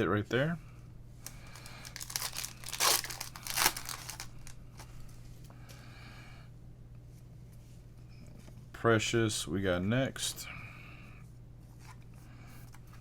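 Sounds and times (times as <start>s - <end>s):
foil wrapper tearing and crinkling: 1.5s - 4.6s.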